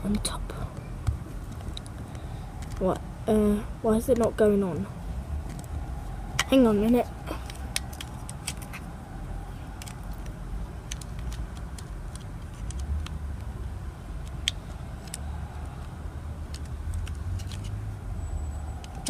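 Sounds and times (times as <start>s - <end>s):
plastic parts clicking: 1.5s - 2.8s, 7.4s - 8.8s, 9.7s - 13.5s, 14.2s - 17.8s
low rumble: 4.6s - 10.8s.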